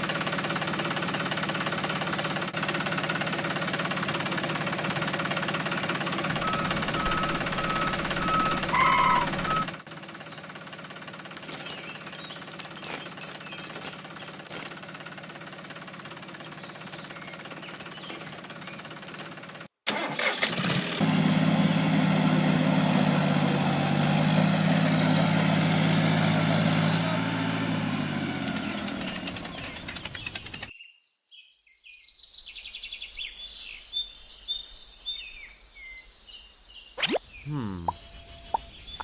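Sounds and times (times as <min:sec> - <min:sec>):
small engine running: 0:00.0 - 0:30.7
birds chirping: 0:06.2 - 0:09.7, 0:33.2 - 0:39.0.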